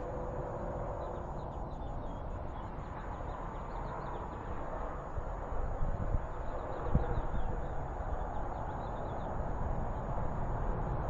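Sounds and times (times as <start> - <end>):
outdoor background noise: 0.0 - 11.0
small birds chirping: 0.8 - 4.8, 6.1 - 10.1.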